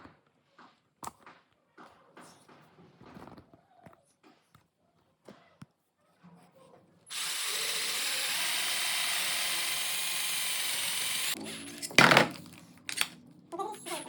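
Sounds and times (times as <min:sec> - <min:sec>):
cordless drill motor whine: 0:07.1 - 0:11.8.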